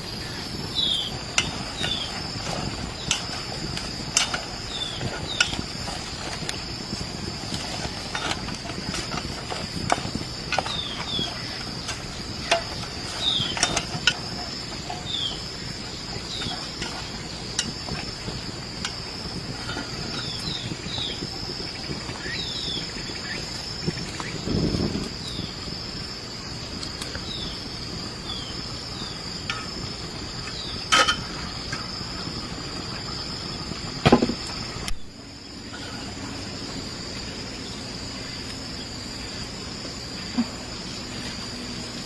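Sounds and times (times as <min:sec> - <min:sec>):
high-pitched insect drone: 0:00.0 - 0:42.0
dull thump: 0:34.0 - 0:34.5.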